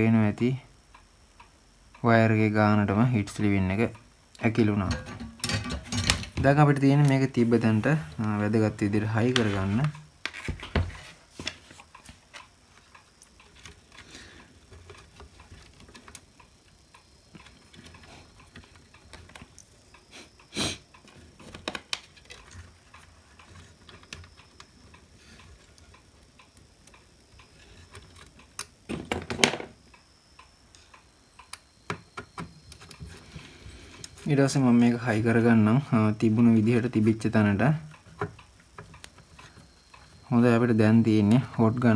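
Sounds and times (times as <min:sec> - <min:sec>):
parts rattling: 0:04.4 - 0:12.2.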